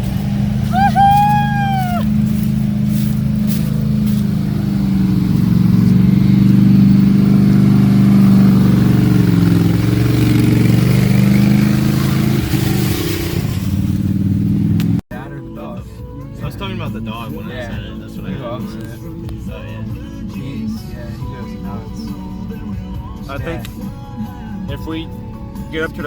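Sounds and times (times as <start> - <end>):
pickup engine running: 0.0 - 15.0.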